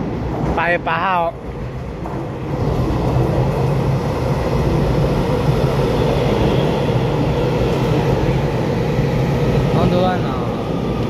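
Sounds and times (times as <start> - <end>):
train wheels and motors rumbling: 0.0 - 11.0
faint high whine: 3.6 - 11.0.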